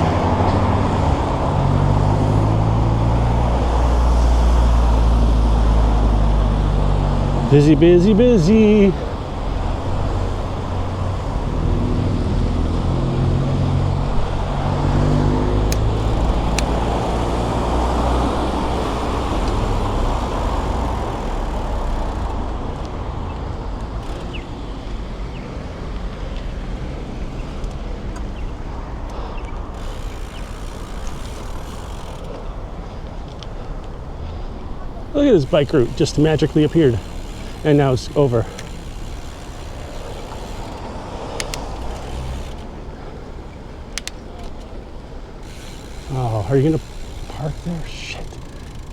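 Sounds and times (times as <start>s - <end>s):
engine hum: 0.0s - 48.9s
vehicles passing: 0.0s - 48.9s
isolated clicks: 35.4s - 42.7s, 43.9s - 44.7s.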